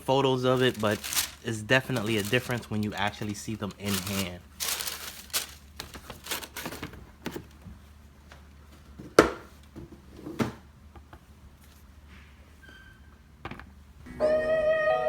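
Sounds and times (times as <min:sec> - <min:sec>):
paper and cardboard rustling: 0:00.0 - 0:07.8.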